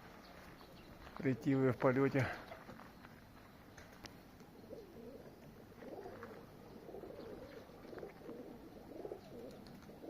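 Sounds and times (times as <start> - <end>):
pigeons cooing: 3.8 - 10.0.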